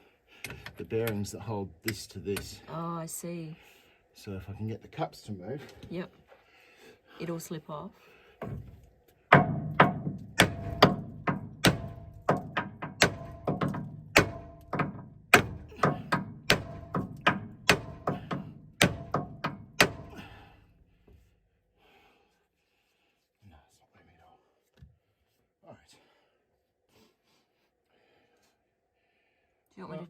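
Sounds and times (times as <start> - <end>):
hammering on metal: 9.3 - 20.5.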